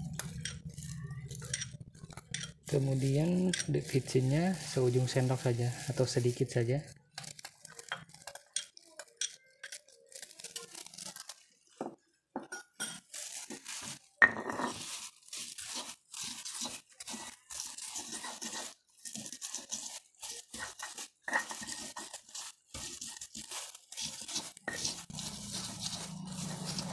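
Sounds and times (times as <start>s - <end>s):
pestle crushing in stone mortar: 14.7s - 26.9s.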